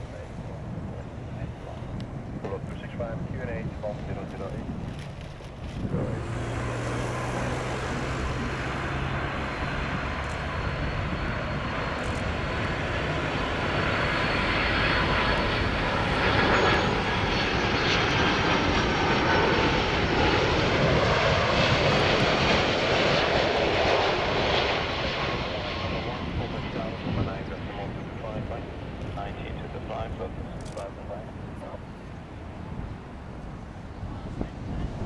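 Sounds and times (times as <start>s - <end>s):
jet airliner passing by: 0.0s - 35.0s.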